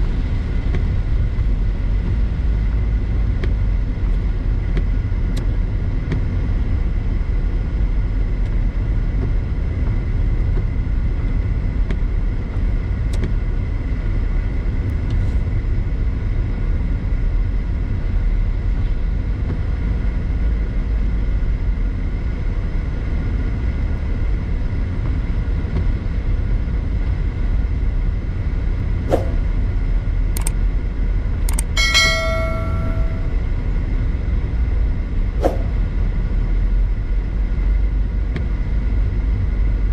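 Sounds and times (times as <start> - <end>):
car driving road noise: 0.0 - 39.9
sharp clicks: 30.4 - 30.6, 31.4 - 31.8
short pitched tone: 31.8 - 33.4.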